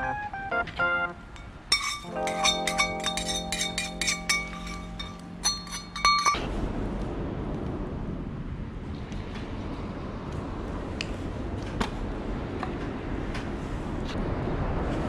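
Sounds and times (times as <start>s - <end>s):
steady low hum: 1.2s - 14.9s
steady rushing noise: 1.4s - 15.0s
utensil clinking against dish: 1.7s - 6.5s.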